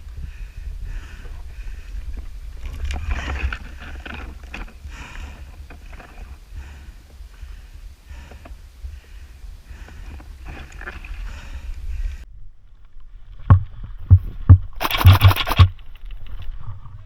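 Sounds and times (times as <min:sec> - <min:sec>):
wind rumbling on microphone: 0:00.0 - 0:06.4
sharp clicks and snaps: 0:14.1 - 0:16.6.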